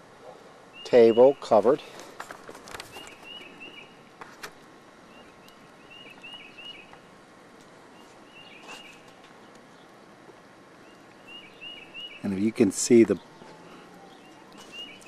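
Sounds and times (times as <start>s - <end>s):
small bird chirping: 2.8s - 4.0s, 5.1s - 7.0s, 8.0s - 10.0s, 10.8s - 15.0s.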